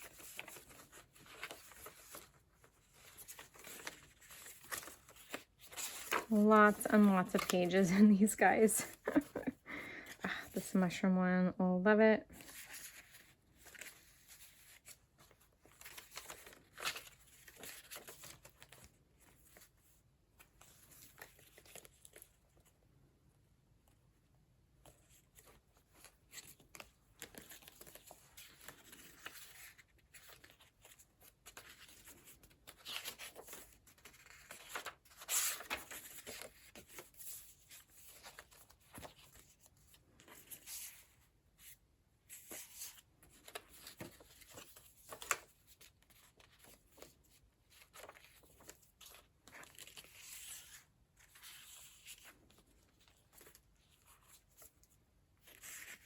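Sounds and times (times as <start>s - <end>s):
paper pages rustling: 0.0s - 10.7s, 12.4s - 22.8s, 24.8s - 56.0s.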